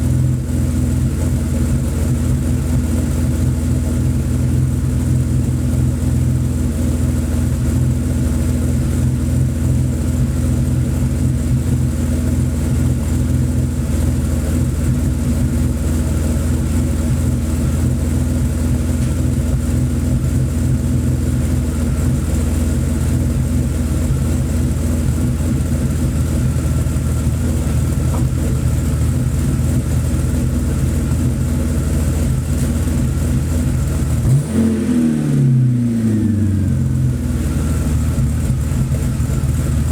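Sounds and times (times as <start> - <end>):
car engine idling: 0.0 - 39.9
engine revving: 23.2 - 31.4, 32.2 - 39.9.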